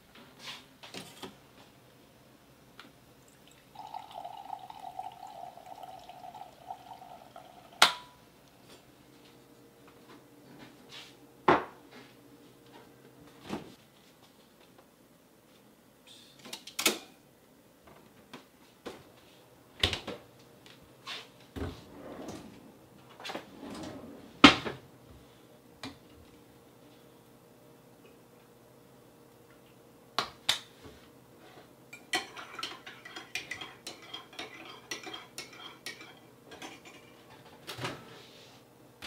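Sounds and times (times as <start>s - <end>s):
faint steady hum: 1.4s - 16.4s.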